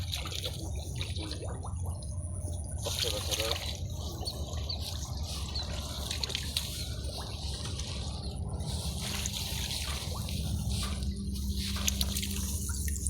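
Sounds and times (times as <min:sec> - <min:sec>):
low steady rumble: 0:00.0 - 0:13.0
shallow water sloshing: 0:00.0 - 0:13.0.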